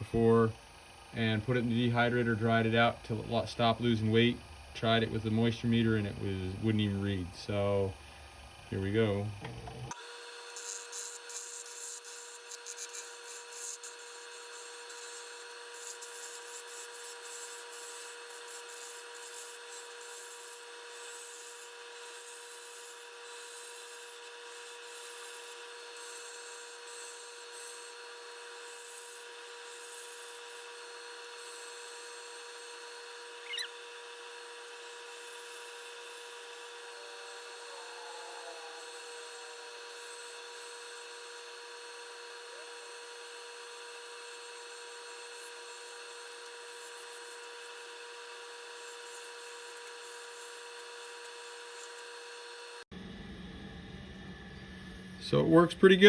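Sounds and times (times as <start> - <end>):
wood lathe whining: 0.0 - 52.9
sharp squeal: 33.4 - 33.9.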